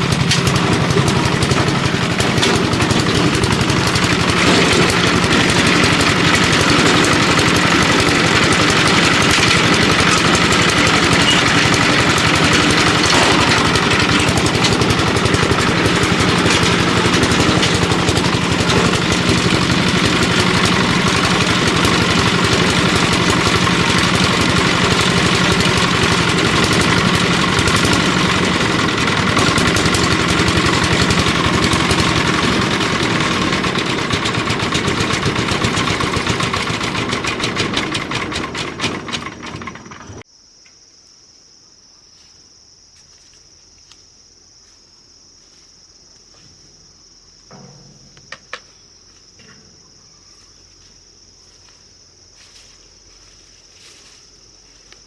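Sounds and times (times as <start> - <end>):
engine running steadily: 0.0 - 40.2, 52.4 - 55.0.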